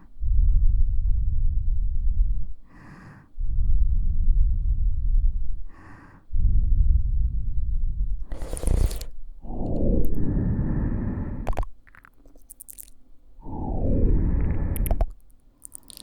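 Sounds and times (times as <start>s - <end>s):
breath blowing on microphone: 8.2s - 11.6s, 13.4s - 15.2s.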